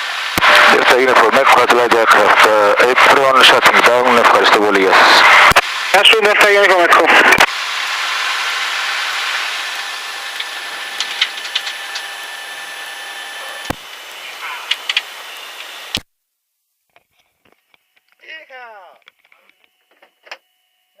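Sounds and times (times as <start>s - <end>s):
faint whine: 0.0s - 16.1s.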